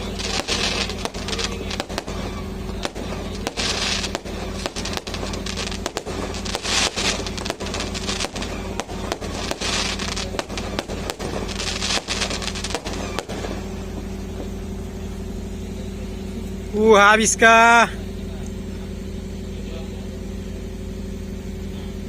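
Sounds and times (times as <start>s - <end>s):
firecracker bangs: 0.0s - 15.9s
fireworks crackling: 0.0s - 17.8s
steady low hum: 0.0s - 22.0s.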